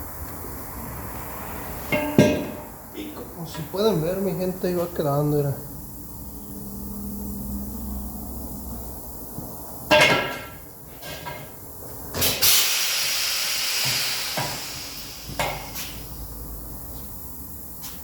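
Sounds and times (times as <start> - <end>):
metal strikes on wheel rim: 1.8 - 3.2, 9.9 - 11.5
hiss: 12.2 - 16.2.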